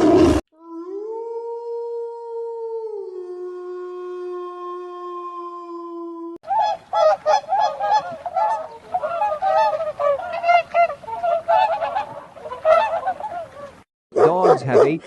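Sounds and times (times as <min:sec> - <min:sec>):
geese honking: 0:06.5 - 0:15.0.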